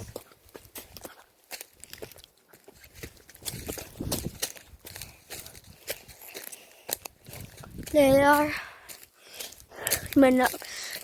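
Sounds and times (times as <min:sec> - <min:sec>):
footsteps crunching on dry leaves: 0:00.0 - 0:11.0.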